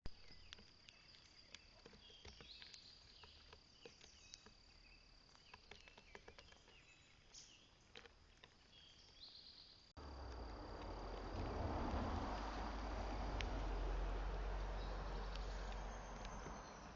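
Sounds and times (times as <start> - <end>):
even rushing noise: 10.0 - 14.6
light ticks: 13.4 - 16.9
bird chirps: 14.4 - 16.9.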